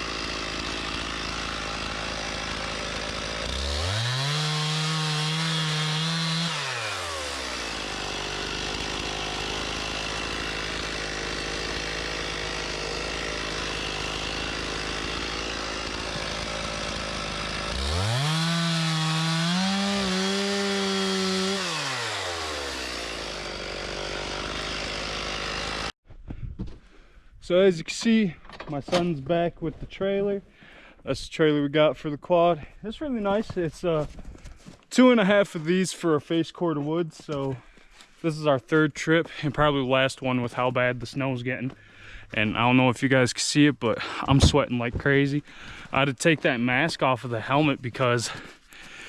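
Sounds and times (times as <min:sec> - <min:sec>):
chainsaw idling and revving: 0:00.0 - 0:26.0, 0:45.4 - 0:49.0.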